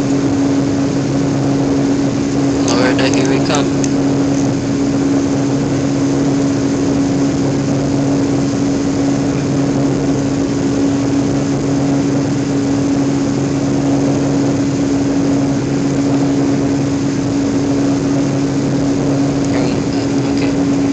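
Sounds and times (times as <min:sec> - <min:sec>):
constant low hum: 0:00.0 - 0:20.9
jet engine and airflow drone: 0:00.0 - 0:20.9.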